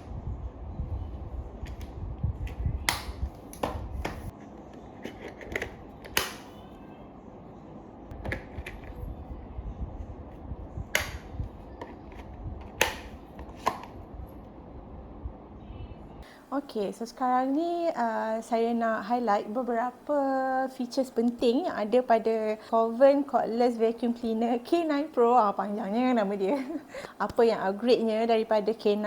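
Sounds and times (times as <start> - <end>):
low rumble: 0.0 - 4.3, 8.8 - 16.2.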